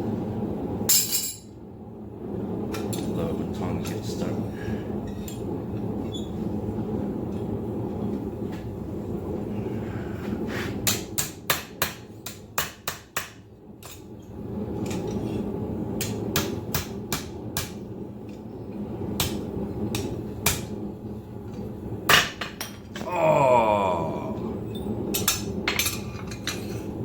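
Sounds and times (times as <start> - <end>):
steady background roar: 0.0 - 27.0
hammer striking steel on anvil: 10.8 - 14.0.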